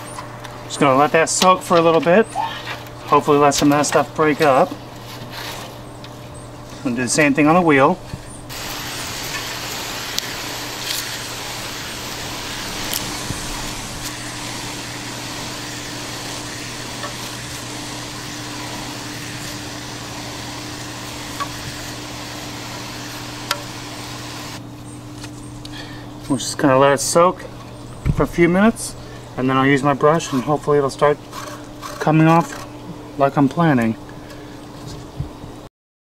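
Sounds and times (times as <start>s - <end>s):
spray hissing: 8.5s - 24.6s.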